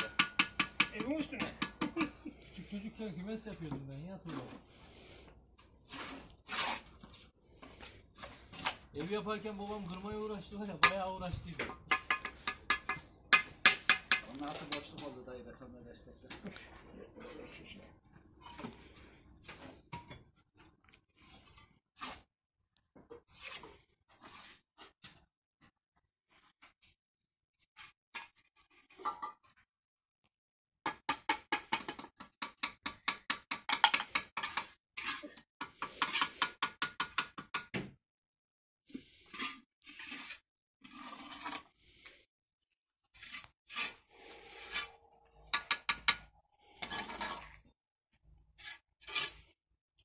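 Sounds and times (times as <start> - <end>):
hand tool striking brick: 0.0 - 2.1, 10.8 - 14.3, 30.9 - 34.7, 35.6 - 37.9
knocks and scrapes on masonry: 0.0 - 2.2, 3.3 - 4.7, 5.6 - 15.2, 18.3 - 27.0, 27.6 - 29.7, 30.9 - 38.0, 38.9 - 41.7, 43.2 - 47.8, 48.5 - 49.6.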